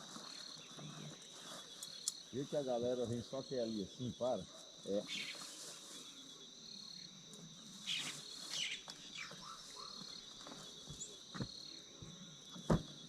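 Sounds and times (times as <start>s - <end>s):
rustling noises: 0.0s - 2.3s, 5.1s - 6.2s
insects chirring: 0.0s - 13.0s.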